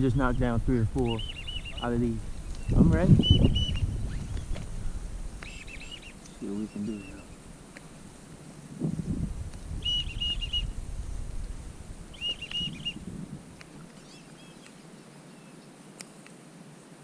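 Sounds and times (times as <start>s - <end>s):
whistling ducks calling: 1.0s - 4.6s, 5.4s - 7.4s, 9.8s - 10.8s, 12.1s - 13.0s.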